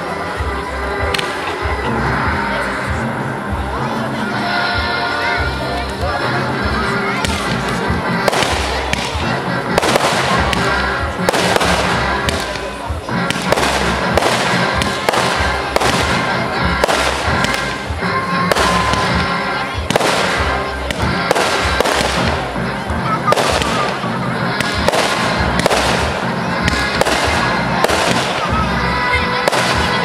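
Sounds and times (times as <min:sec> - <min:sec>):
music playing: 0:00.0 - 0:30.0
fireworks shells bursting: 0:07.2 - 0:19.2.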